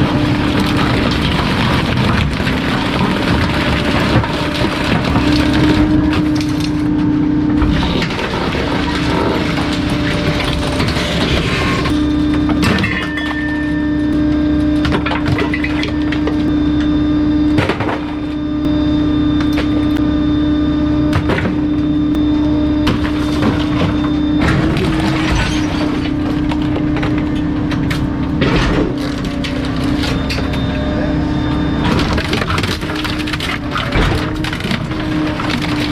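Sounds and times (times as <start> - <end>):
items cracking and splintering: 0.0 - 13.6, 22.8 - 30.7, 31.8 - 35.9.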